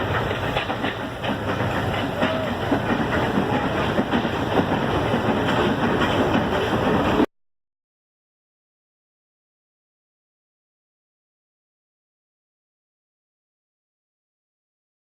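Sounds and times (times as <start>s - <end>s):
train rumbling: 0.0s - 7.3s
wheels clicking over rails: 0.0s - 7.3s.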